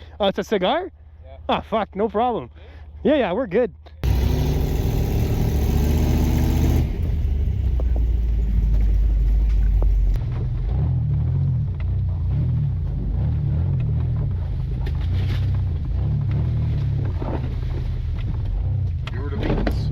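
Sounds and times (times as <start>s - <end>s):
truck engine rumbling: 4.0s - 11.9s.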